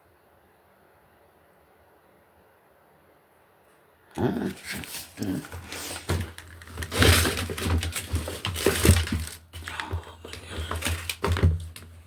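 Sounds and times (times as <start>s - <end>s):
crinkling and rustling: 4.3s - 12.0s.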